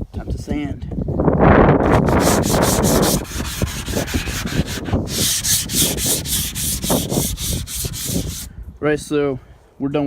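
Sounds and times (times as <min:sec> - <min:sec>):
sandpaper scratching on filler: 0:01.8 - 0:08.5.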